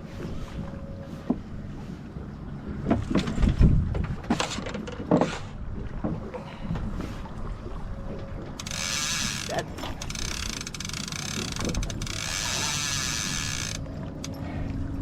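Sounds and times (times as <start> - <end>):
fishing reel ratchet whirring: 8.6 - 14.4.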